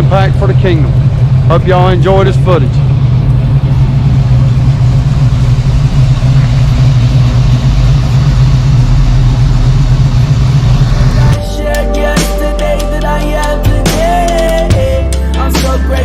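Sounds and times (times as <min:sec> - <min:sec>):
vehicle engine droning: 0:00.0 - 0:16.0
music: 0:11.1 - 0:16.0.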